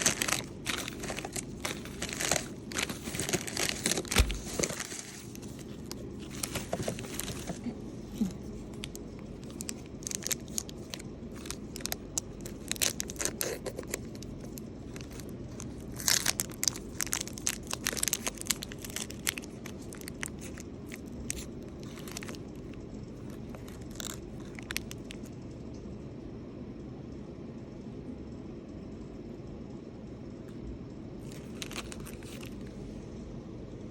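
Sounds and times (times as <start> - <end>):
wrapper crinkling and tearing: 0.0 - 25.3, 31.2 - 32.8
steady low hum: 0.0 - 33.9.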